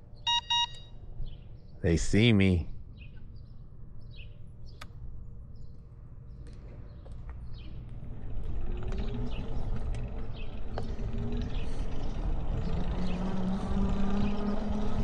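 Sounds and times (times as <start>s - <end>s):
rumble of wind and tyres: 0.0s - 15.0s.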